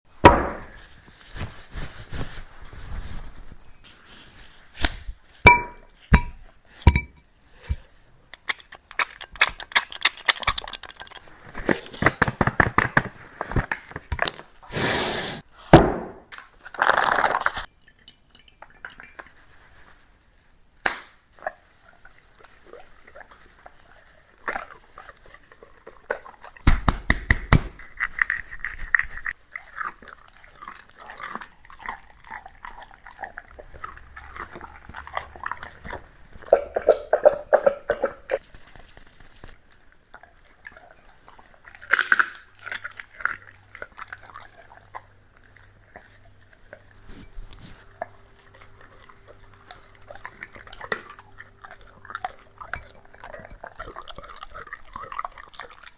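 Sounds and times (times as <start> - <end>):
dog dish clinking: 5.5 - 7.2
dog chewing and crunching: 7.8 - 13.5, 21.4 - 26.8, 27.7 - 55.9.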